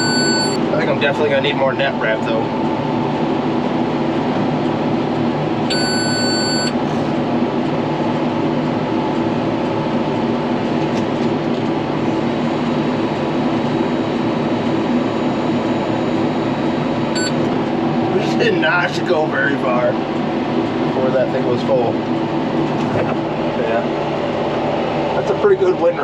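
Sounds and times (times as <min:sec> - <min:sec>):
monitor beeping: 0:00.0 - 0:00.9, 0:05.7 - 0:06.8, 0:14.5 - 0:17.5
tractor engine and baler running: 0:00.0 - 0:26.0.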